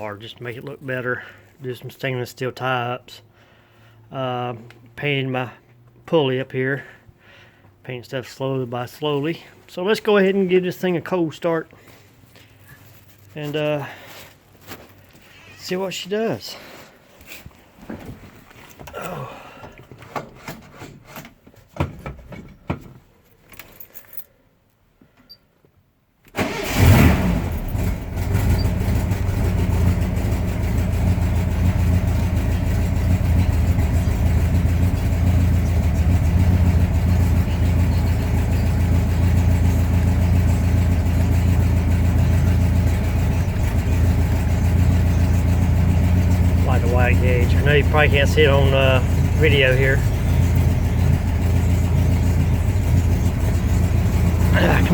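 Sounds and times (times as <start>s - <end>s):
car engine starting and idling: 26.3s - 54.9s.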